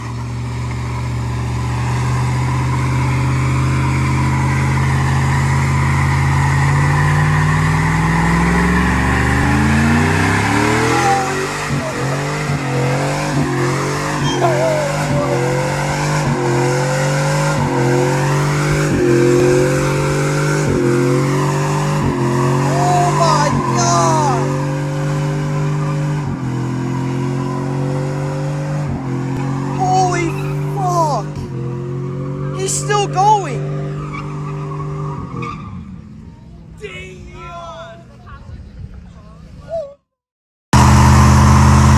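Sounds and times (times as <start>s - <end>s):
spinning tires squealing: 0.0s - 28.0s, 33.6s - 36.1s
engine revving: 0.0s - 36.2s, 40.7s - 41.9s.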